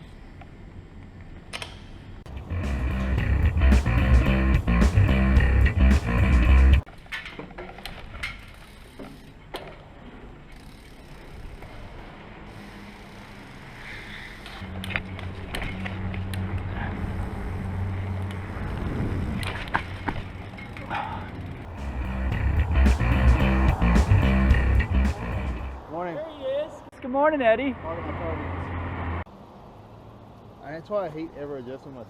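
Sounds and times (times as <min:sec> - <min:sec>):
low hum: 0:02.3 - 0:06.8, 0:21.7 - 0:25.9
bicycle parts clicking and rattling: 0:06.9 - 0:21.7.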